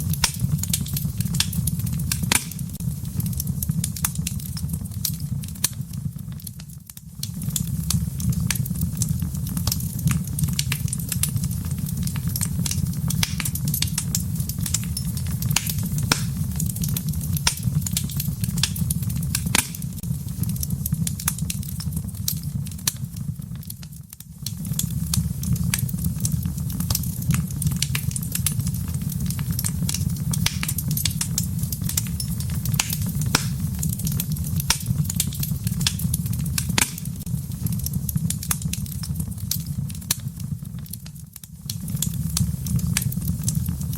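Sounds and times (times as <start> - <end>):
wood fire crackling and popping: 0.0 - 43.9.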